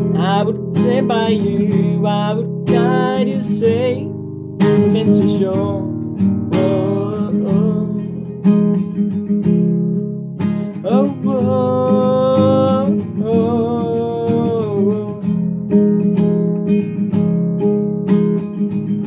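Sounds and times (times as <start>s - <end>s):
person singing: 0.0s - 8.6s, 10.6s - 15.5s
strummed acoustic guitar: 0.0s - 19.0s.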